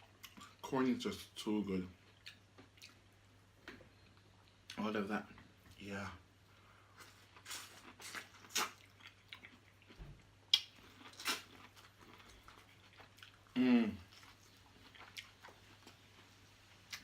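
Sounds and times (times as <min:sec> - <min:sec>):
chewing and biting food: 0:07.0 - 0:13.5, 0:14.1 - 0:17.0.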